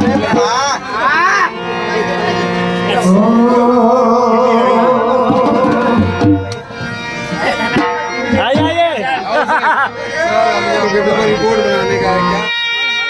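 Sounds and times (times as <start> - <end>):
drum accompaniment: 0.0 - 0.8, 4.8 - 9.6.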